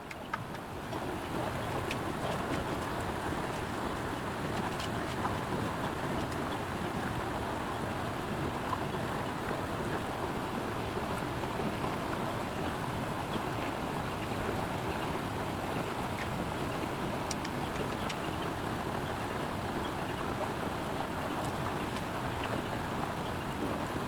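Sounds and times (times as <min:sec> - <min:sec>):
rushing water: 0:00.1 - 0:24.0
faint ticks: 0:17.2 - 0:18.2.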